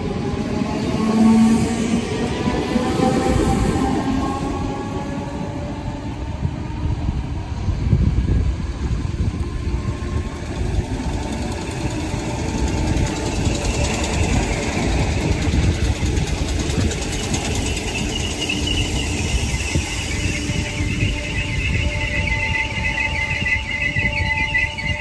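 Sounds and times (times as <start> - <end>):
train wheels rumbling on rail: 0.0 - 25.0
high brake squeal: 12.1 - 25.0.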